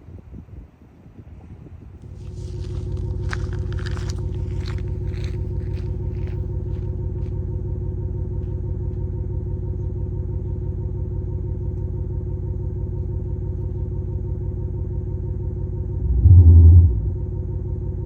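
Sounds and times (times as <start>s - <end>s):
synthetic engine idle rumble: 2.0s - 18.0s.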